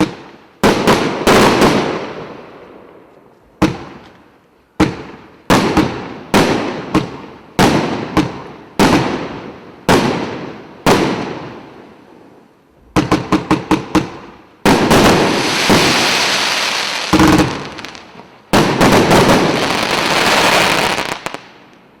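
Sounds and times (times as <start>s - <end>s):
dense crackling bursts: 14.7s - 21.5s.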